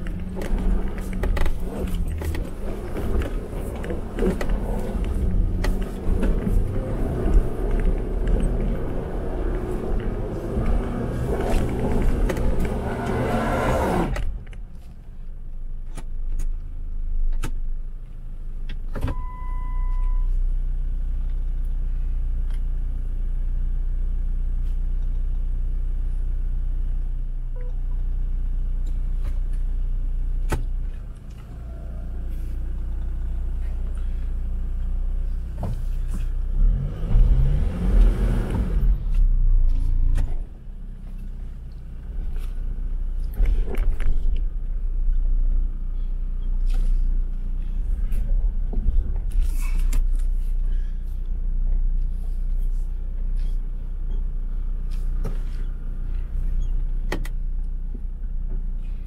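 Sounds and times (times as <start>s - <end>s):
car engine drone: 0.0s - 59.0s
short beep: 19.1s - 20.4s, 27.6s - 28.0s.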